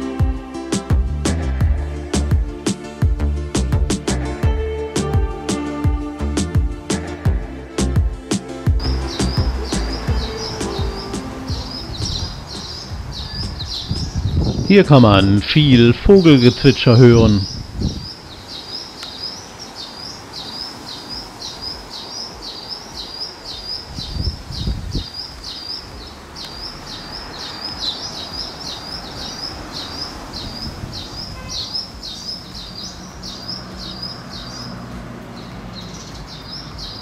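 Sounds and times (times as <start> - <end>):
bird repeating high chirp: 8.8 - 15.0, 16.2 - 34.7.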